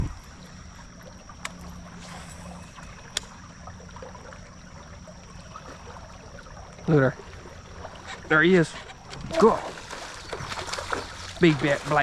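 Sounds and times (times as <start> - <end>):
thin high tone: 1.6 - 3.7
water washing: 4.4 - 12.0.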